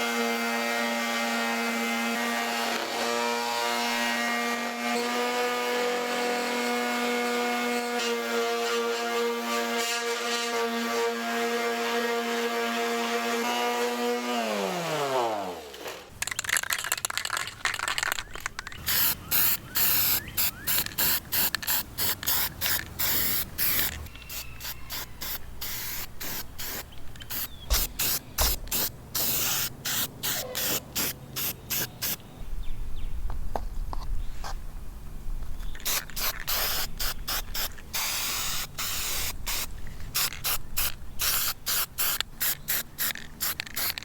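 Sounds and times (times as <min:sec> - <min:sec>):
small electric motor whine: 0:00.0 - 0:16.1
short spurts of hissing spray: 0:18.8 - 0:32.2, 0:35.8 - 0:44.0.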